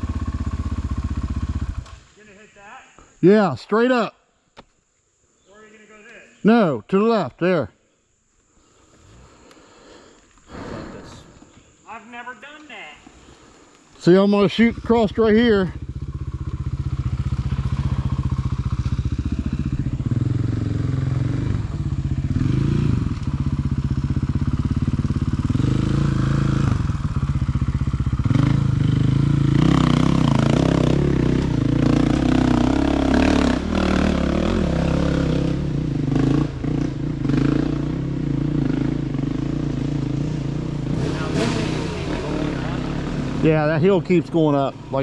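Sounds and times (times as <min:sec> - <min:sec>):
dirt bike engine revving: 0:00.0 - 0:02.0, 0:14.0 - 0:45.0.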